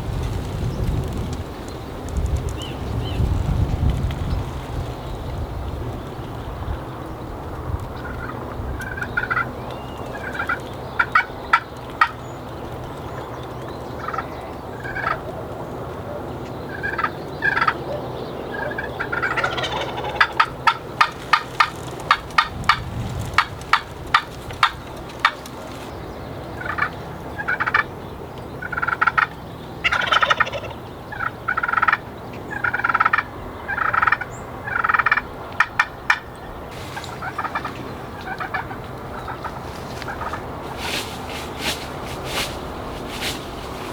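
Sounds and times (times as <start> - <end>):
turkey gobbling: 8.0 - 9.5, 10.1 - 12.2, 14.0 - 15.2, 16.8 - 25.9, 26.5 - 27.9, 28.6 - 32.0, 32.6 - 43.9.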